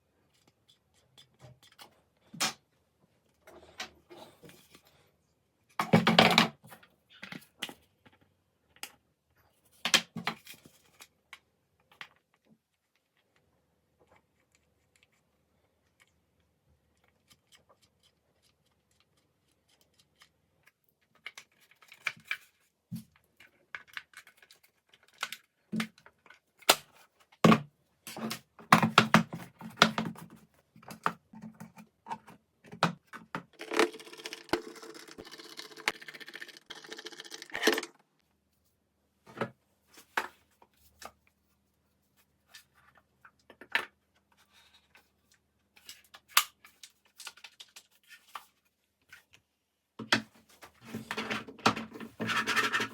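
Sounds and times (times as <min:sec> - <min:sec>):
continuous scraping: 0:50.6 - 0:52.9.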